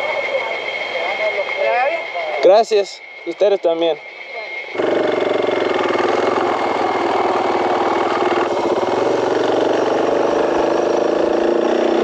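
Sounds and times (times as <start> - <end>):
motorcycle engine riding off: 4.8 - 12.0.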